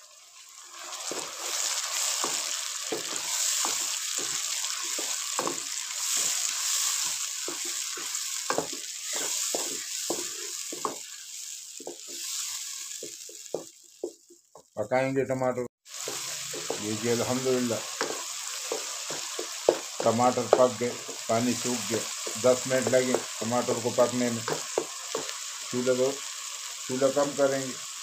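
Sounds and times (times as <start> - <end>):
food sizzling in a pan: 0.0 - 14.8, 15.8 - 28.0
spatula scraping a pan: 0.9 - 13.4, 17.9 - 23.3.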